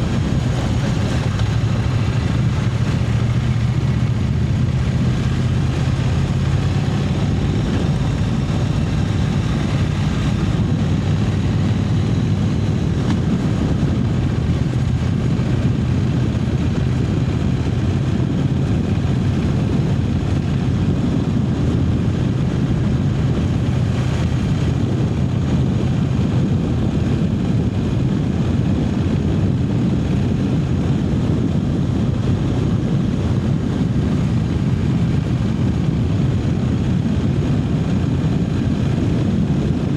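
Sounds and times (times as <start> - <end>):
motorcycle engine cruising: 0.0 - 39.9
wind noise: 0.0 - 39.9.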